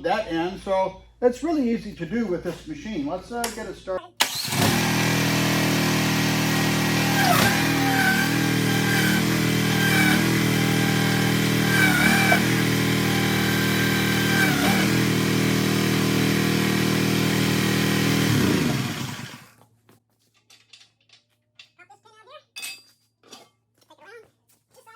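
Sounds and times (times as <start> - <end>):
small engine running: 4.2 - 19.5.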